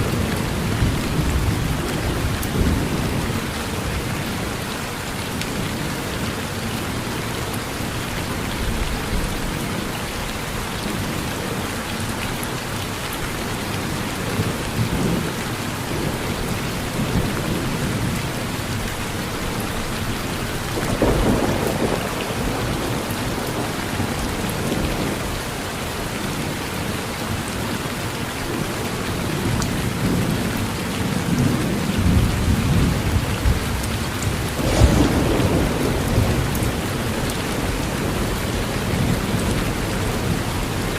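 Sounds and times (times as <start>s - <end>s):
heavy rain on a roof: 0.0s - 40.9s
thunder rumbling: 20.5s - 25.3s, 31.2s - 40.8s.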